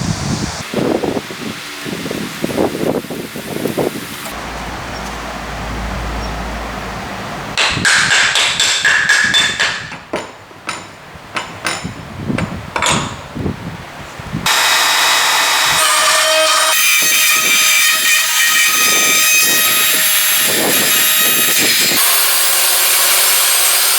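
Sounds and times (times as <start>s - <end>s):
hammer strikes on metal tool: 7.6s - 13.2s
power tool running: 14.5s - 23.9s.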